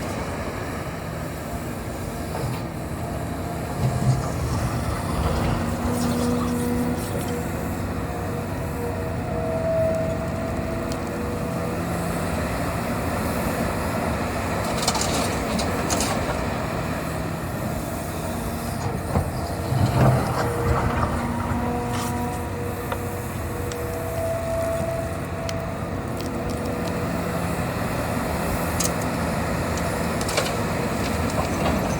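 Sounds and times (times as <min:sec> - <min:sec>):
excavator engine and hydraulics: 0:00.0 - 0:31.9
hydraulic whining tones: 0:02.3 - 0:11.5, 0:17.2 - 0:27.5.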